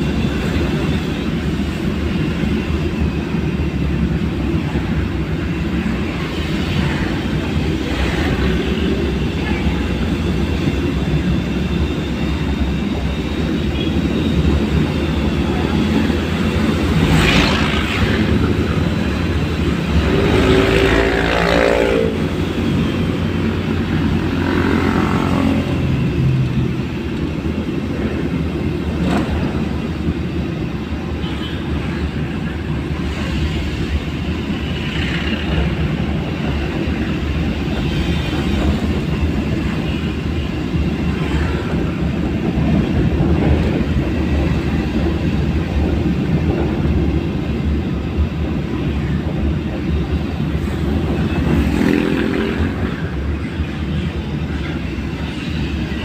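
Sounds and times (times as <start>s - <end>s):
road traffic rumble: 0.0s - 56.0s
vehicles passing close by: 13.8s - 30.1s, 50.0s - 56.0s.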